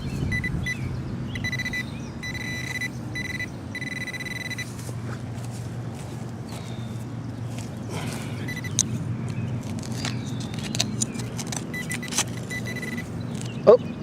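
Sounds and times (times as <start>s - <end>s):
metal detector high-pitched tone: 0.0s - 0.8s, 1.4s - 4.7s, 8.5s - 8.8s, 11.7s - 13.1s
low steady rumble: 0.0s - 13.4s.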